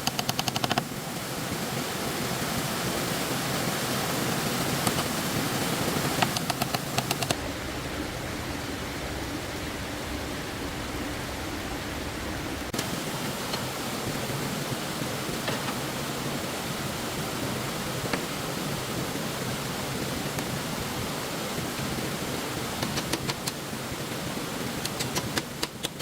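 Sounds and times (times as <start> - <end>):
sharp clicks: 0.0 - 0.9, 6.2 - 7.4, 22.8 - 23.6, 24.8 - 26.0
stream water rushing: 0.0 - 26.0.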